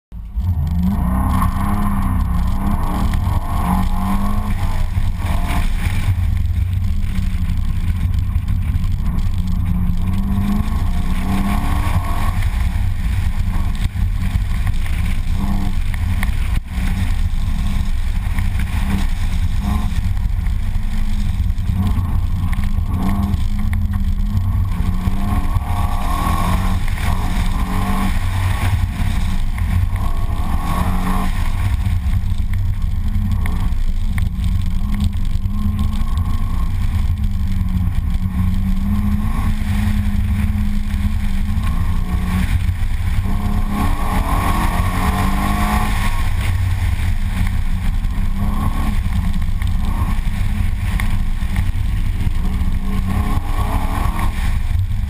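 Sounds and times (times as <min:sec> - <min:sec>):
car engine accelerating: 0:00.1 - 0:55.0.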